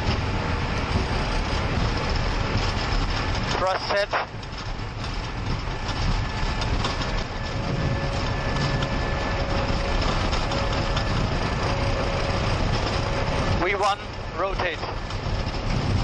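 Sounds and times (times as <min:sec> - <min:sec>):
jet engines at takeoff thrust: 0:00.0 - 0:16.0
takeoff roll rumble: 0:00.0 - 0:16.0.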